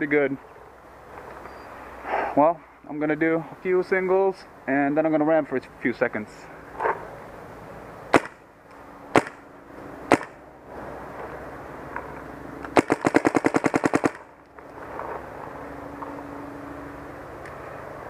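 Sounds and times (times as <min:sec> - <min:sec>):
paintball marker firing: 0:08.1 - 0:08.4, 0:09.1 - 0:09.4, 0:10.1 - 0:10.4, 0:12.7 - 0:14.3.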